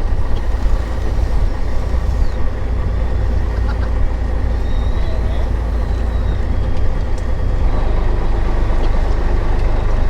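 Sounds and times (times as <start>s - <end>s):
boat engine rumbling: 0.0s - 10.0s
wind: 0.0s - 10.0s.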